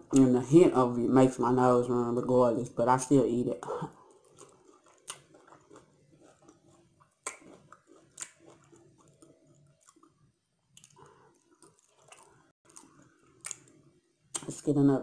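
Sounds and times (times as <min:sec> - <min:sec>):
close moist chewing: 0:04.0 - 0:14.5.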